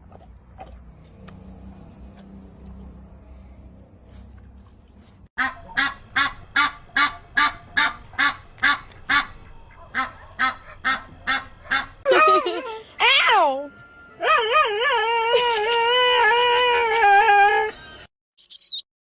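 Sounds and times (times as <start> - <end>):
farm waterfowl honking: 5.4 - 12.0.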